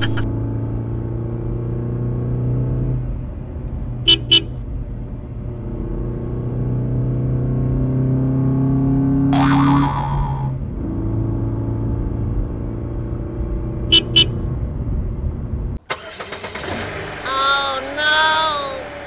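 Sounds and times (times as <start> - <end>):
motor vehicle engine drone: 0.0 - 19.0
horn beeps: 4.1 - 4.5, 13.9 - 14.4.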